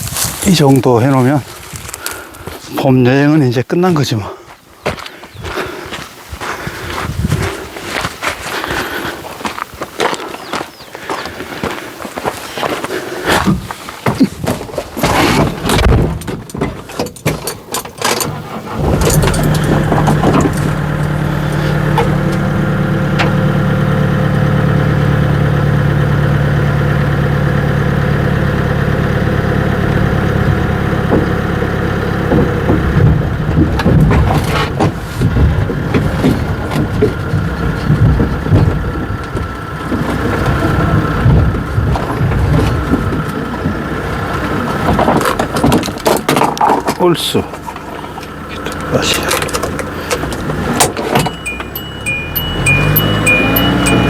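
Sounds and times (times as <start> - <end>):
engine idling: 17.6 - 54.0.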